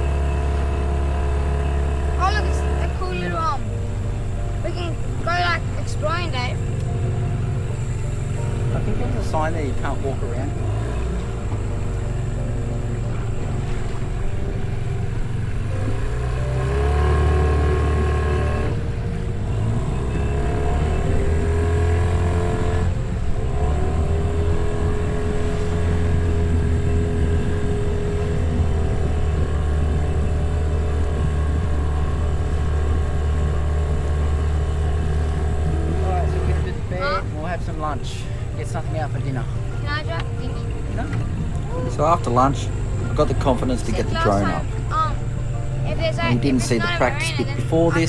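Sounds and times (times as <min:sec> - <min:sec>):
outboard motor running: 0:00.0 - 0:48.0.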